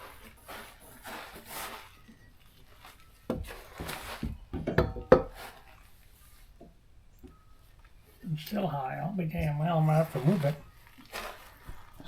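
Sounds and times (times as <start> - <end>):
wooden knocks and clunks: 3.3 - 5.4.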